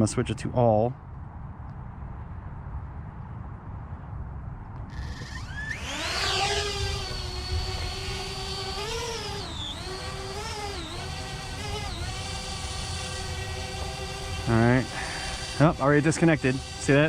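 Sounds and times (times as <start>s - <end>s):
drone propellers whining: 4.9s - 17.0s.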